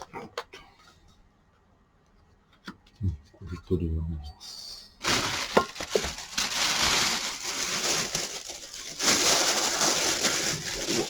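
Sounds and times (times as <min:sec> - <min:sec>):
scraping and rustling: 0:05.0 - 0:11.0.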